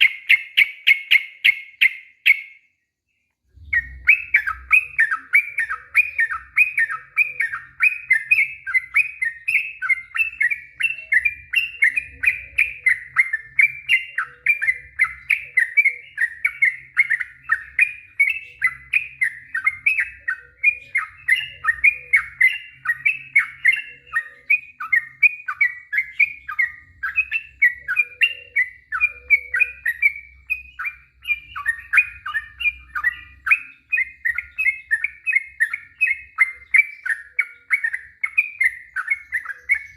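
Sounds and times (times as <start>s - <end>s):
bird singing quick chirps: 0.0s - 39.9s.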